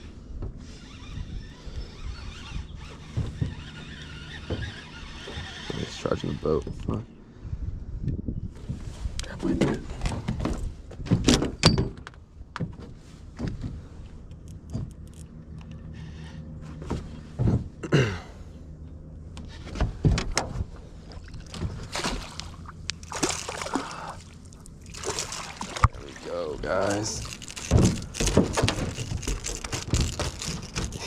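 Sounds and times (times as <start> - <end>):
knocks and thumps against boat: 2.8 - 6.8, 9.4 - 13.9, 16.6 - 17.9, 19.6 - 31.0
water splashing: 21.1 - 29.5.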